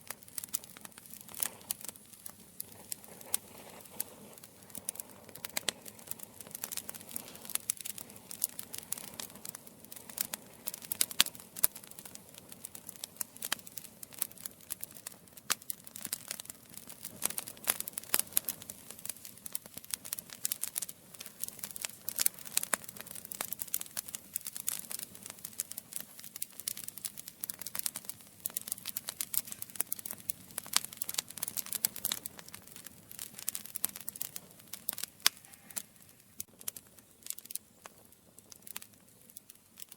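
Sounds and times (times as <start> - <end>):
soft hiss: 0.0 - 11.5
campfire crackling: 0.0 - 39.9.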